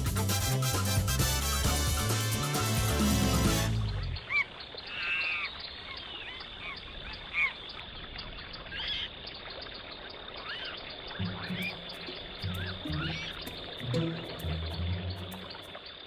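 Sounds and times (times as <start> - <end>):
layered animal call: 10.4 - 15.7
animal high chirps: 11.2 - 15.7.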